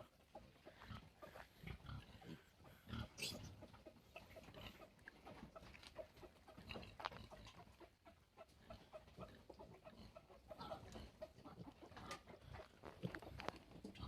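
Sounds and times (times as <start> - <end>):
pig grunting and snuffling: 0.0 - 14.0.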